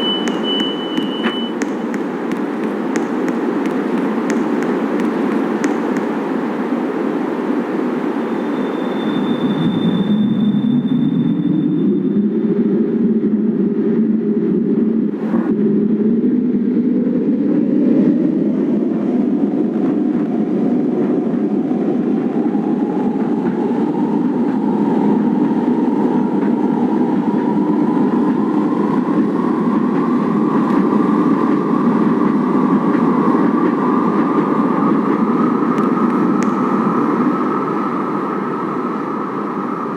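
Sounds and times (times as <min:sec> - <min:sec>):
train wheels rumbling on rails: 0:00.0 - 0:07.8, 0:19.3 - 0:39.9.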